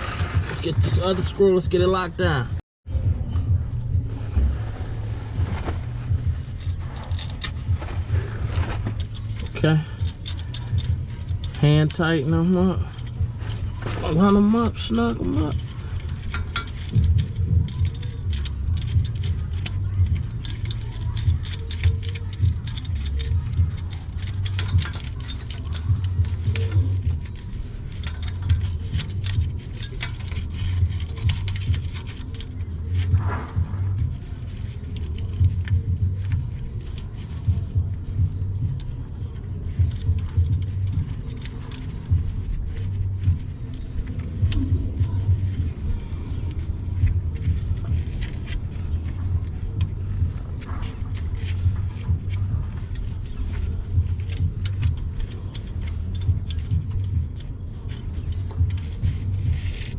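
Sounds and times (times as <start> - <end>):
steady low rumble: 0.0 - 59.9.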